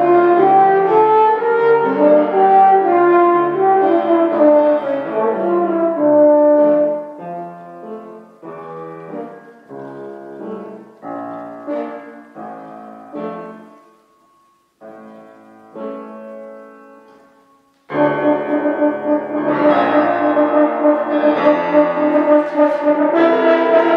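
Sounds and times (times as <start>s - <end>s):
orchestral brass music: 0.0s - 11.0s, 17.9s - 23.9s
french horn: 0.0s - 13.8s, 17.9s - 23.9s.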